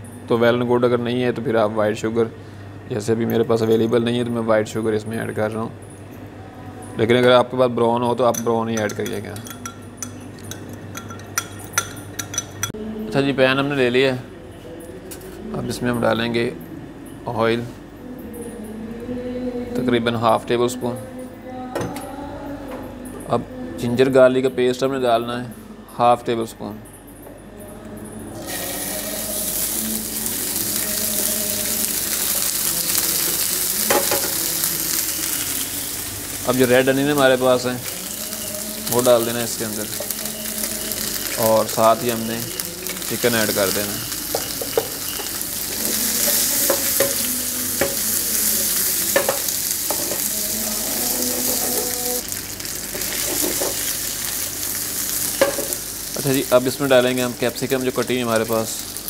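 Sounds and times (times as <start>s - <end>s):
paste sizzling in hot oil: 28.4s - 59.0s.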